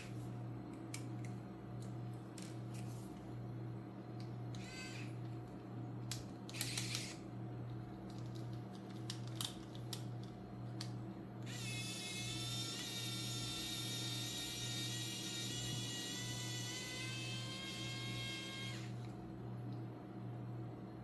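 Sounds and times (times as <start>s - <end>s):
steady low hum: 0.0s - 21.0s
high whir with hiss: 11.5s - 19.1s.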